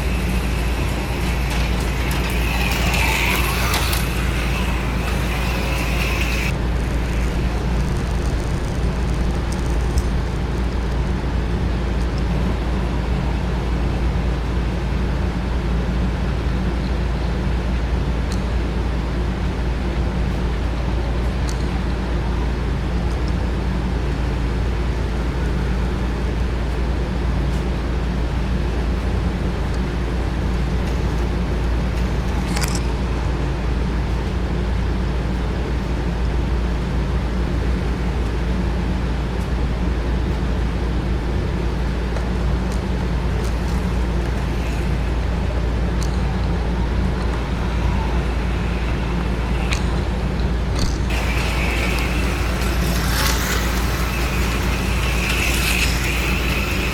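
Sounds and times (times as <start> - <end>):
small electric motors humming: 0.0 - 11.3, 40.3 - 56.9.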